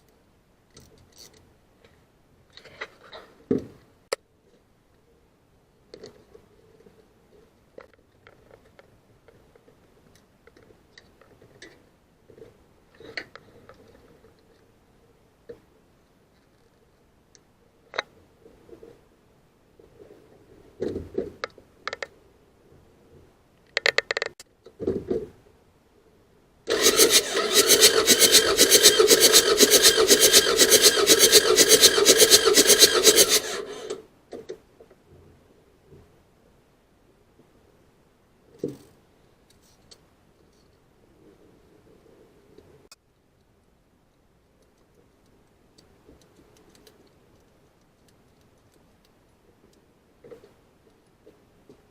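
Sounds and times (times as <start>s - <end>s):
faint small clicks and knocks: 0.0s - 3.2s, 5.9s - 14.7s, 38.6s - 40.8s, 42.6s - 51.9s
diesel engine cranking: 26.7s - 34.0s.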